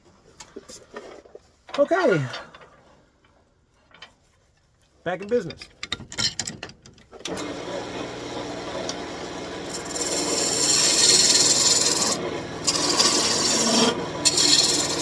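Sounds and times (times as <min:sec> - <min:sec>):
wood lathe shaving wood: 0:07.3 - 0:15.0.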